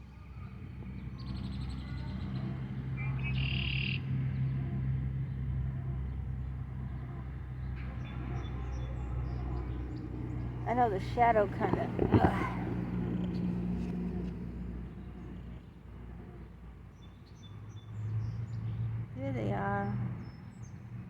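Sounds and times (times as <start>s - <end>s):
bird chirp: 0.0s - 13.9s, 20.1s - 21.0s
low engine hum: 0.0s - 21.0s.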